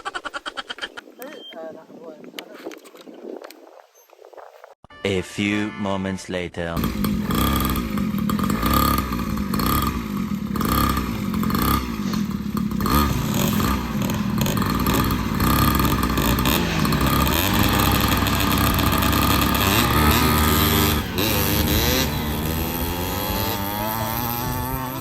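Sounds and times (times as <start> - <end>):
dirt bike engine revving: 6.8 - 25.0.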